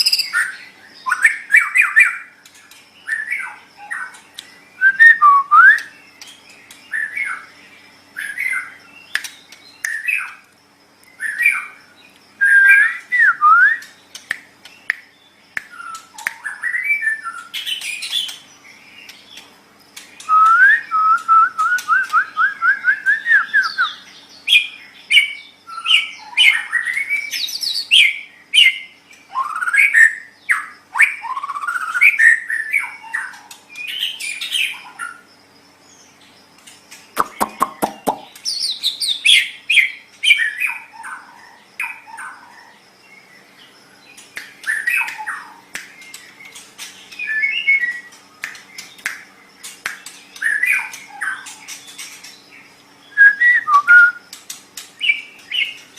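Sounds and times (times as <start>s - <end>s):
bird singing whistled phrases: 0.0s - 2.2s, 4.7s - 6.0s, 12.4s - 13.9s, 20.2s - 30.3s, 47.1s - 48.2s, 53.1s - 54.3s.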